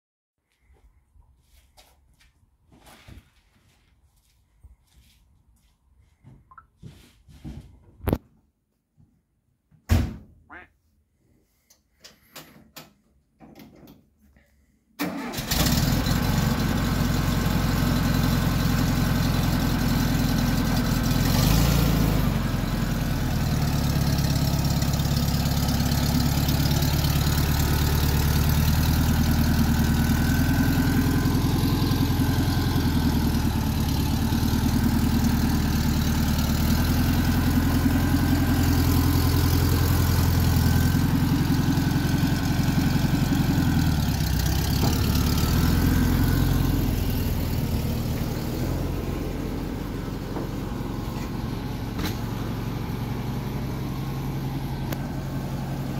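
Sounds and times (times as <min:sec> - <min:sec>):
car engine starting and idling: 0:15.0 - 0:55.9.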